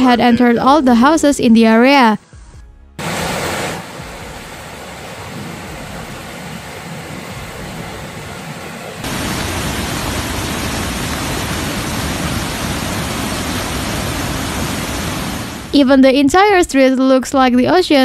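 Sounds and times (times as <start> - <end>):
floodwater rushing: 3.0 - 15.8.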